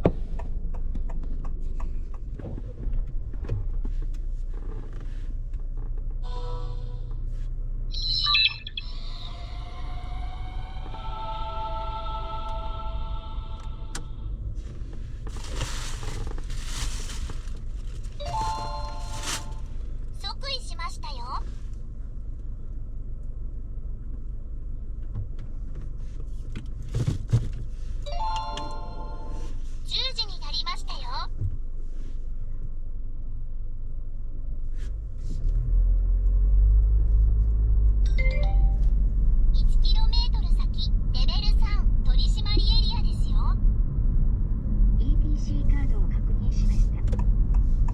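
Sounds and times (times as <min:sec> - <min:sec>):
road and engine rumble in car: 0:00.0 - 0:11.1, 0:12.4 - 0:47.9
electronic chime: 0:18.2 - 0:19.6, 0:28.1 - 0:29.5, 0:38.1 - 0:39.0.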